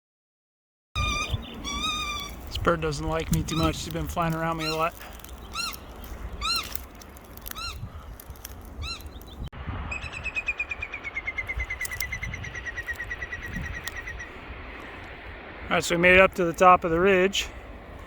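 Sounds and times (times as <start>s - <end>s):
bird alarm calls: 1.0s - 2.6s, 3.4s - 15.0s
wind rumble on microphone: 1.0s - 18.0s.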